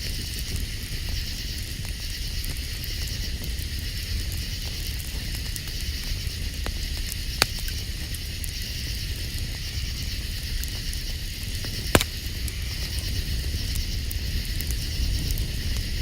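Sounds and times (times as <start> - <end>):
campfire crackling and popping: 0.0 - 16.0
night insects chorus: 0.0 - 16.0.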